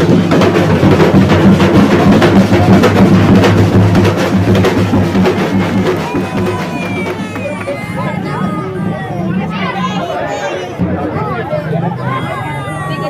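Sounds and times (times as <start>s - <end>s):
massed drums beating fast rhythm: 0.0s - 12.2s.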